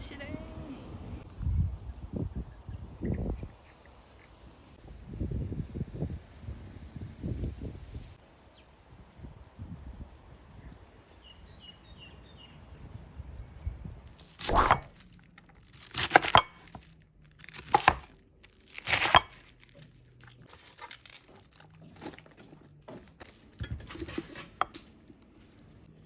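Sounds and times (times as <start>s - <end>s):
plastic packaging crinkling and tearing: 14.2s - 23.6s.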